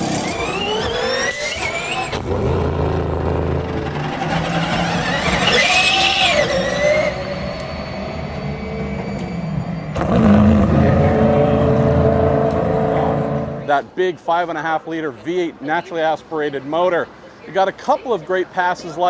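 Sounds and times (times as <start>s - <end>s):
rising electric whine: 0.0s - 13.8s
race car engine deep rumble: 2.1s - 13.9s
engine firing with a bang: 8.6s - 13.7s.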